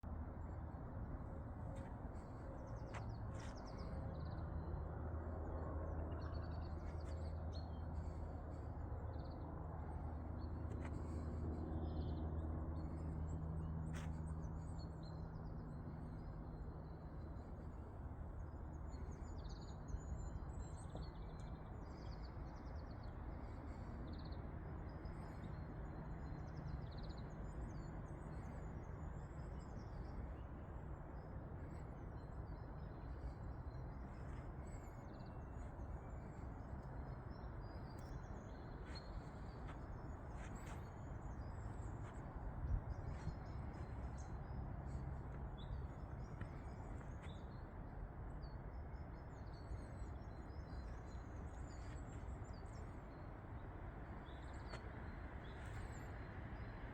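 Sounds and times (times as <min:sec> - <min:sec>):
woodland ambience rushing: 0:00.0 - 0:56.9
small birds chirping: 0:18.6 - 0:56.9.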